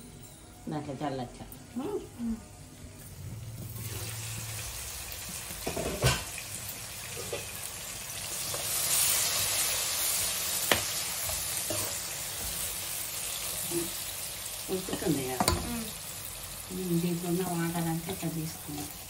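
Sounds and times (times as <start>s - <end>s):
vegetables sizzling in hot oil: 3.4s - 19.0s.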